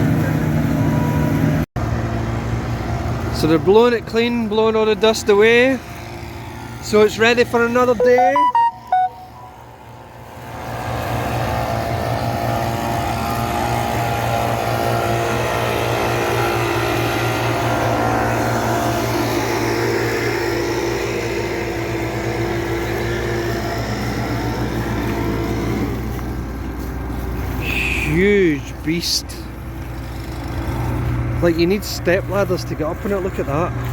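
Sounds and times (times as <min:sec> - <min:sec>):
engine-driven air blower: 0:10.1 - 0:33.9.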